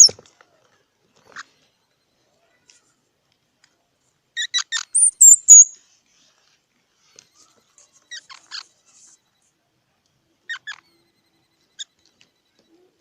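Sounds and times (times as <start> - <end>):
squirrel chirping and whistling: 4.4 - 5.8, 10.5 - 11.0.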